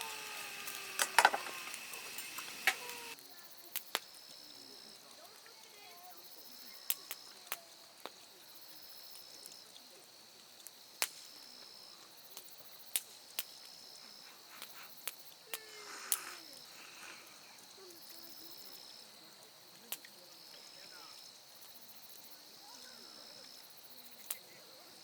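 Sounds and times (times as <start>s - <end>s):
sharp pops: 0.0s - 4.1s, 11.0s - 11.5s, 12.3s - 17.6s
cricket trilling: 0.0s - 7.8s, 11.4s - 19.4s
campfire wood crackling: 0.0s - 25.0s.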